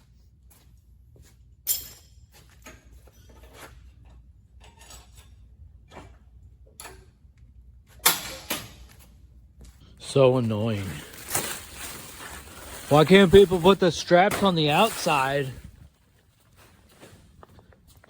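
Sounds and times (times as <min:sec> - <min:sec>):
objects and packaging being handled: 0:10.0 - 0:17.9.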